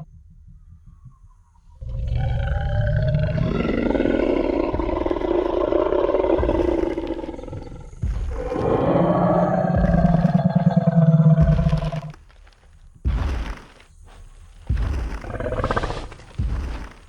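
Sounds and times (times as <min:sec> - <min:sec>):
dinosaur roar: 0:01.8 - 0:12.2, 0:14.7 - 0:17.0
heavy low thump: 0:03.2 - 0:17.0.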